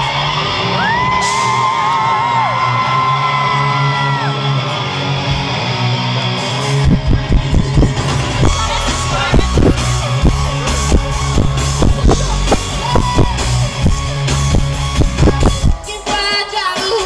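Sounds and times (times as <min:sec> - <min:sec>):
live pop-rock band: 0:00.0 - 0:17.0
drum beat: 0:06.8 - 0:17.0.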